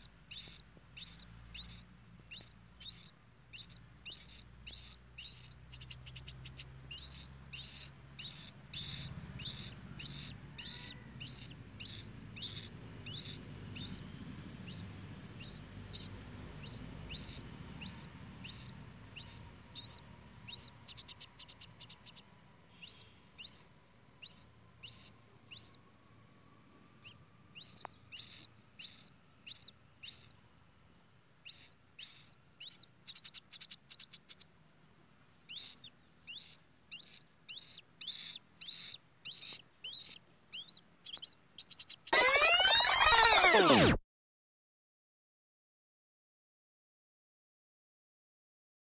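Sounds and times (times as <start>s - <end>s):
bird giving high chirps: 0.0s - 25.8s, 27.0s - 30.4s, 31.5s - 34.5s, 35.5s - 44.0s.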